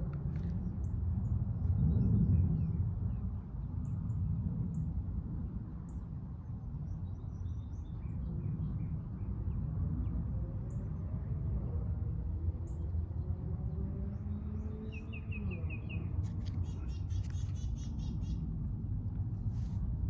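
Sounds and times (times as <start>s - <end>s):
small birds chirping: 14.0s - 18.5s.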